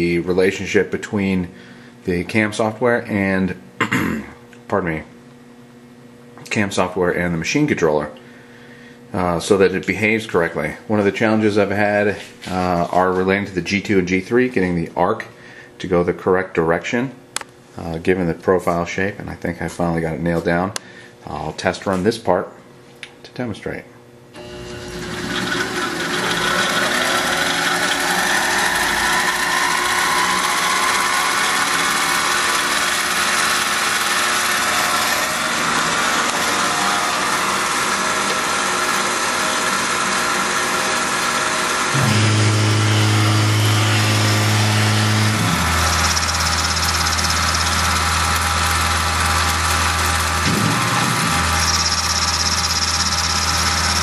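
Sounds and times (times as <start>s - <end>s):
milling machine whine: 24.4s - 54.0s
loud low hum: 25.9s - 37.8s, 41.9s - 54.0s.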